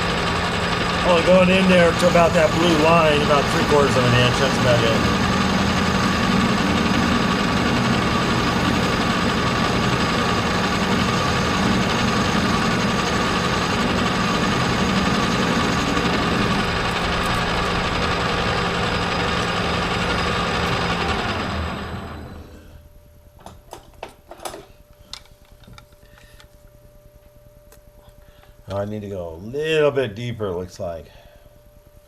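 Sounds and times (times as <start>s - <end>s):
constant high tone: 0.0s - 22.7s
lathe motor and spindle hum: 0.0s - 22.8s.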